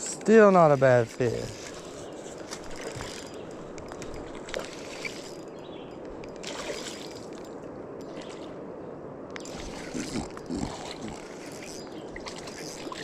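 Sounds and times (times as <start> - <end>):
river water rushing: 9.4 - 13.0.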